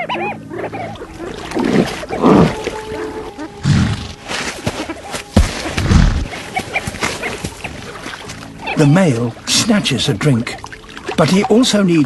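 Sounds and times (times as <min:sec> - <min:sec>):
bird calls: 0:00.0 - 0:09.4
background music with held notes: 0:00.0 - 0:12.0.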